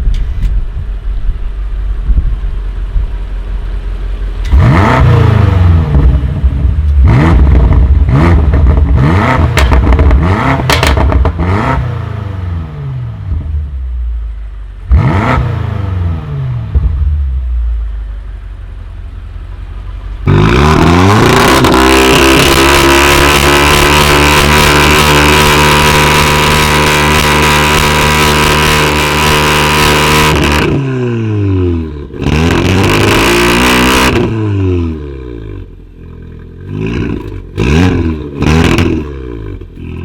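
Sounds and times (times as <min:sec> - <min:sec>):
car engine revving: 0:03.5 - 0:40.0
exhaust pops and crackles: 0:06.8 - 0:11.4, 0:36.0 - 0:40.0.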